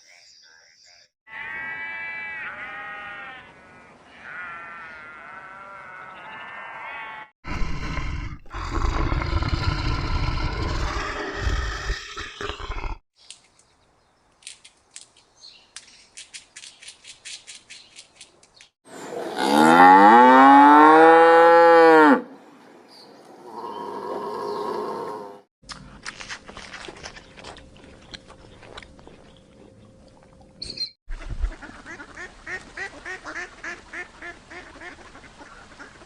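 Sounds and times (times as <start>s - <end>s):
cow mooing: 1.3s - 3.5s, 4.1s - 7.3s, 19.0s - 22.3s
rough animal call: 23.3s - 25.5s.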